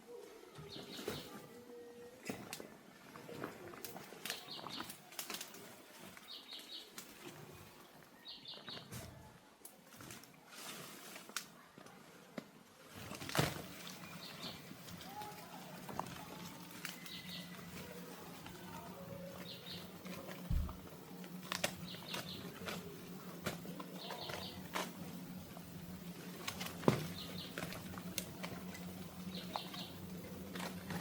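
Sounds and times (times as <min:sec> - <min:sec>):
knocks and rustling: 0:20.2 - 0:20.9.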